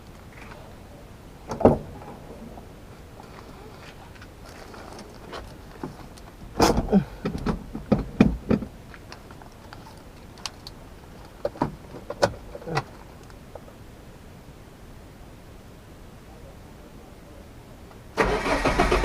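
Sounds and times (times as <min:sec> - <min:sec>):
clunks and rattles in truck cab: 0:01.5 - 0:02.4, 0:05.4 - 0:08.8.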